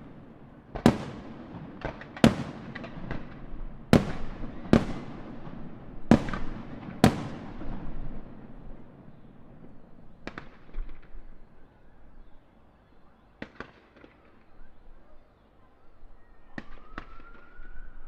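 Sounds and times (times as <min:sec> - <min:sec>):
rising firework whistle: 0:16.2 - 0:18.0.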